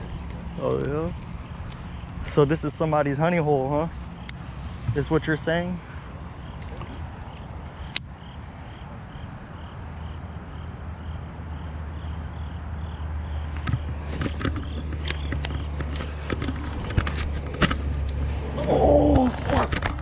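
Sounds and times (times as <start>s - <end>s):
distant highway traffic hum: 0.0s - 20.0s
sharp clicks and knocks: 13.5s - 18.2s, 19.1s - 20.0s.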